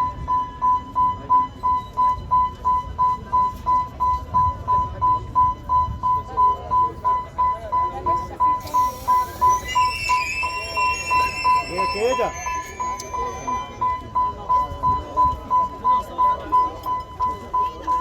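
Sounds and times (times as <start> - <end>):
level crossing signal beeping: 8.4 - 14.7.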